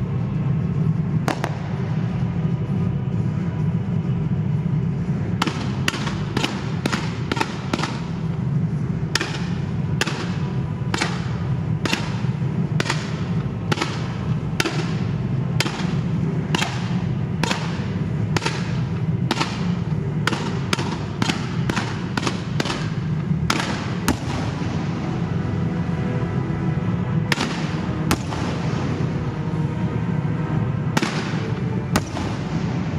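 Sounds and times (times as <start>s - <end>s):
steady low rumble: 0.0s - 32.9s
fireworks bangs: 1.3s - 1.9s, 31.0s - 32.9s.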